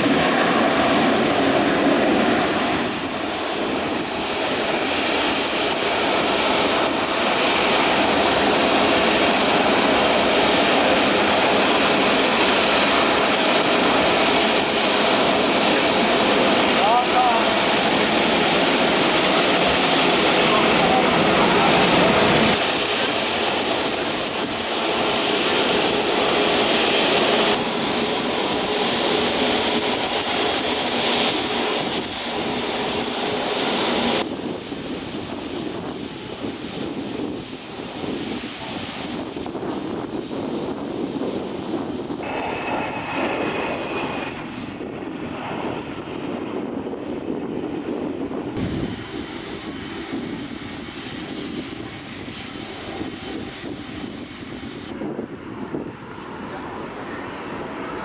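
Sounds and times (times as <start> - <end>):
jet engines rushing hum: 0.0 - 58.0
high-pitched whine: 42.2 - 58.0.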